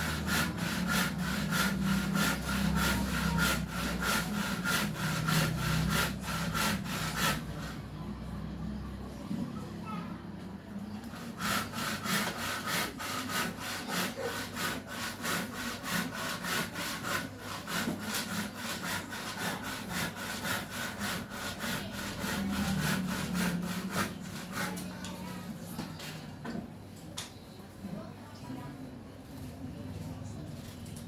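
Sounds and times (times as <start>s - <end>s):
rhythmic rasping strokes: 0.0s - 7.8s, 11.0s - 25.4s.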